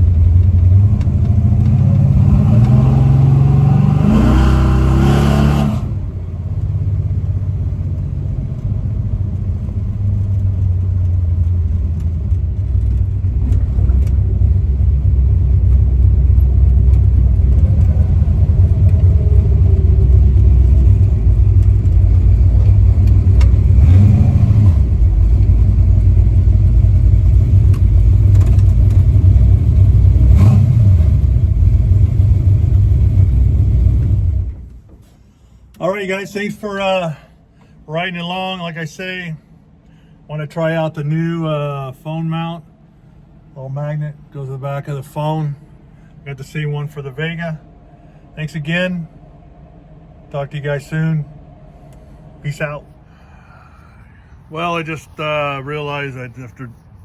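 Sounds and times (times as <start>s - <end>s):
pickup engine revving: 0.0s - 7.8s, 9.7s - 34.7s.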